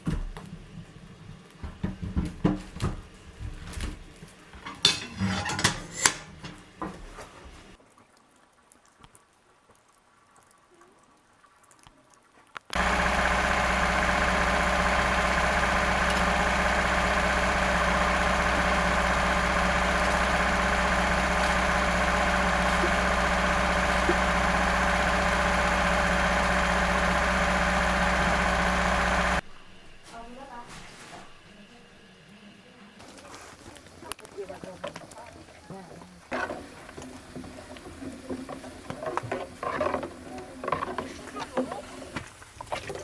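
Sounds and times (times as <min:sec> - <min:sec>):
engine idling loud: 0:12.8 - 0:29.4.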